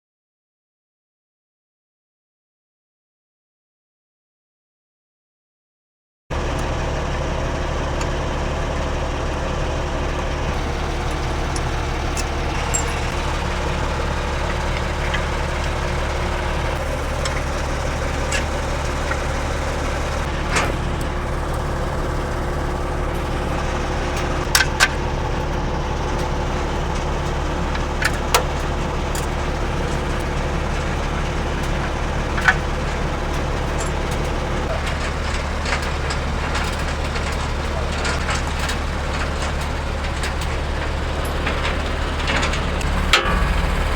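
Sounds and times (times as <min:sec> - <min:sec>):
engine idling: 0:06.3 - 0:43.9
sharp clicks and knocks: 0:10.5 - 0:43.9.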